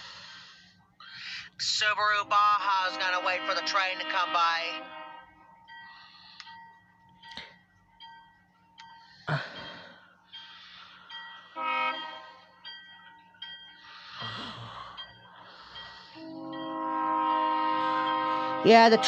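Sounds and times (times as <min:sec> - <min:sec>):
locomotive air horn blasts: 0:02.6 - 0:05.4, 0:11.6 - 0:12.4, 0:16.2 - 0:19.0.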